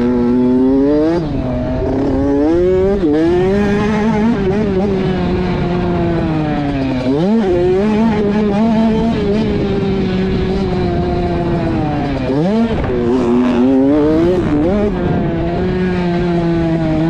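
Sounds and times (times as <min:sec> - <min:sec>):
dirt bike engine revving: 0:00.0 - 0:17.0
track rumble: 0:00.0 - 0:17.0
wind: 0:00.0 - 0:17.0.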